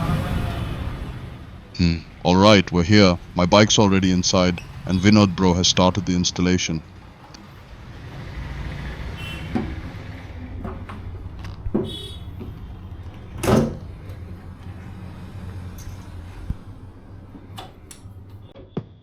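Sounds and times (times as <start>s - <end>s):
workshop background hum: 0.0s - 18.6s
knocks and clunks of tools: 9.5s - 16.7s.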